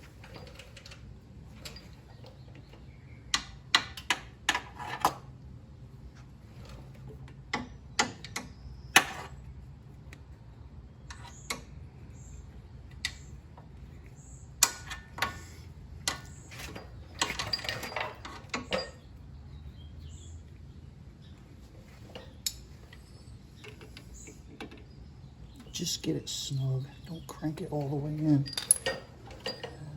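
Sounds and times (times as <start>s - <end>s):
metal tools clinking: 16.1s - 19.1s, 27.8s - 29.9s.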